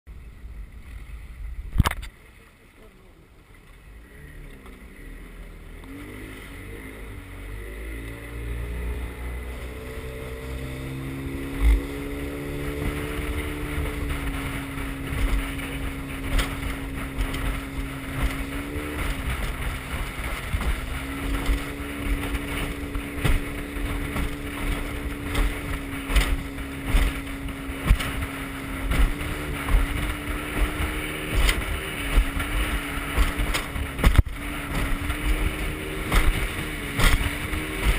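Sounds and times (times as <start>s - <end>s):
wind on microphone: 0.1s - 2.2s, 5.1s - 37.9s
motorboat engine: 0.1s - 37.9s
irregular thumps: 11.6s - 37.9s.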